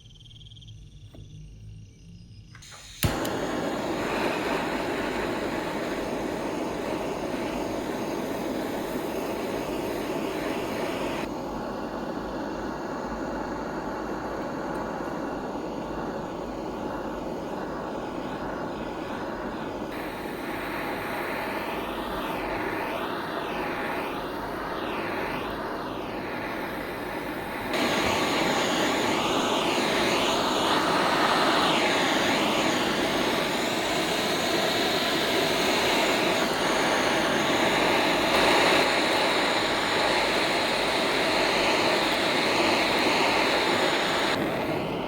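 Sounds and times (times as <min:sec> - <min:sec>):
power tool running: 0:02.5 - 0:11.3.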